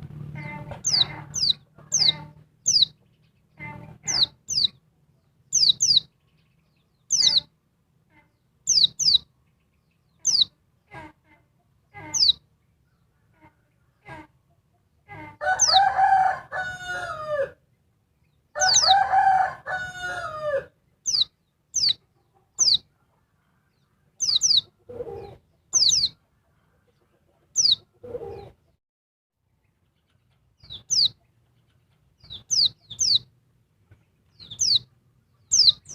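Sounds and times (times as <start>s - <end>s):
rooster crowing: 15.4s - 17.6s, 18.6s - 20.8s.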